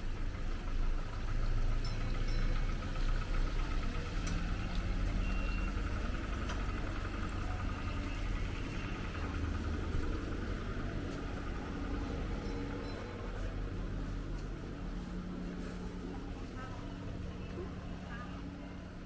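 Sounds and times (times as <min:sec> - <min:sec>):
vehicle engine rumbling: 0:00.0 - 0:19.0
faint clicks: 0:04.1 - 0:05.2.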